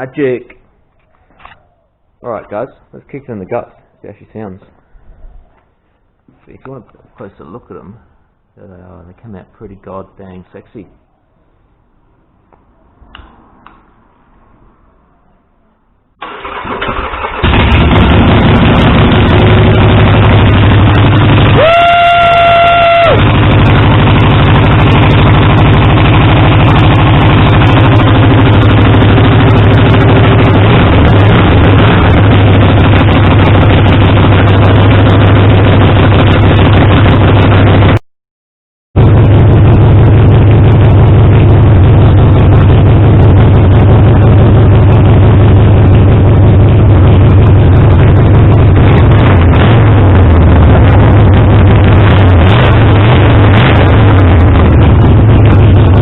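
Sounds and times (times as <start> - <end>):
motorcycle engine idling loudly: 16.5 - 38.0, 39.0 - 56.0.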